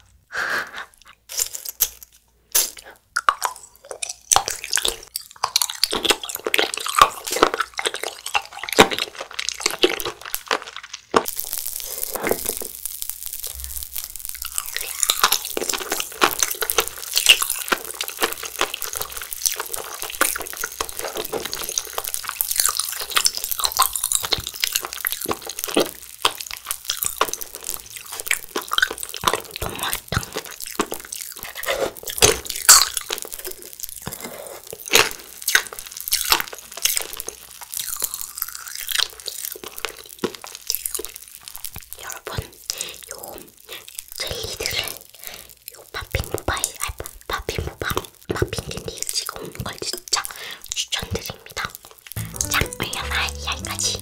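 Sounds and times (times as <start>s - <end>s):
wet squishy chewing and crunching: 1.0s - 50.6s
dense fine crackle: 10.1s - 37.8s.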